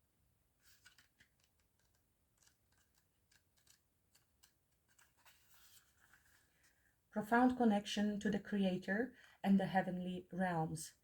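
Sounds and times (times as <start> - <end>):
light ticks of pages handled: 0.6 - 6.8
paper rustling: 0.6 - 6.8.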